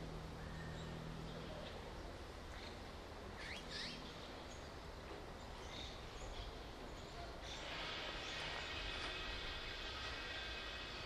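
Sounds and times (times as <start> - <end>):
outdoor background noise: 0.0 - 11.0
magpies calling: 2.5 - 4.6.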